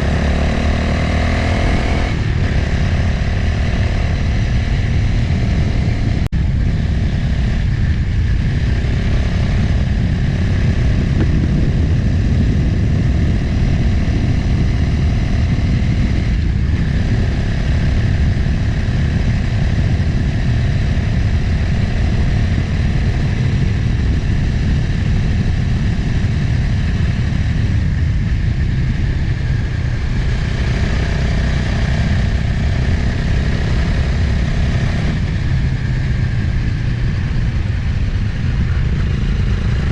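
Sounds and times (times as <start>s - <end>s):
motorcycle engine cruising: 0.0s - 39.9s
wind noise: 0.0s - 39.9s.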